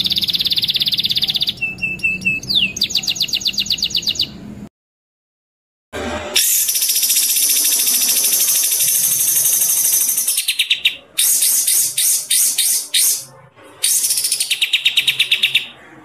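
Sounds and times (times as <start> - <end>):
songbird trilling: 0.0 - 4.4, 6.7 - 15.8.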